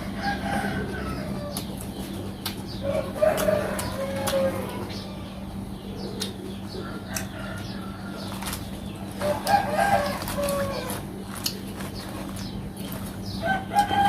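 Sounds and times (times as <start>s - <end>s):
rooster crowing: 0.0s - 1.6s, 2.8s - 5.3s, 9.2s - 11.0s, 13.4s - 14.0s
low steady hum: 0.0s - 14.0s.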